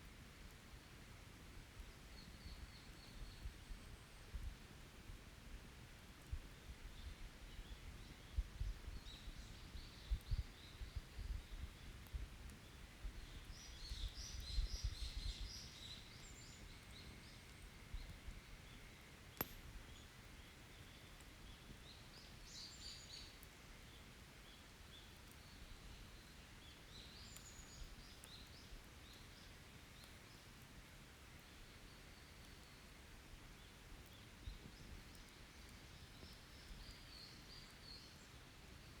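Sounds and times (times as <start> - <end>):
campfire crackling: 18.5 - 22.6, 23.2 - 39.0
fire popping: 19.3 - 20.1
songbird chirping: 33.6 - 39.0.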